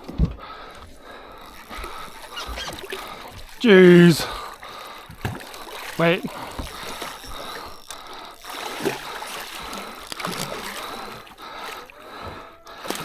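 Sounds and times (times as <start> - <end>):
water lapping against boat: 0.0 - 13.0
low voice sounds: 3.6 - 4.4, 6.0 - 6.4.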